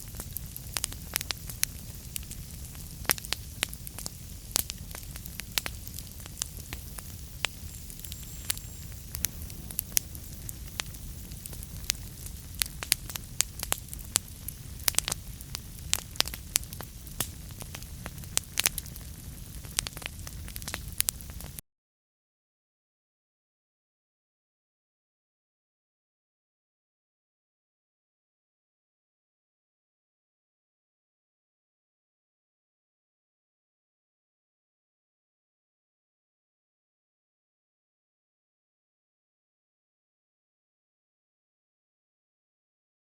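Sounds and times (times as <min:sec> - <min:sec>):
wood fire crackling: 0:00.0 - 0:21.6.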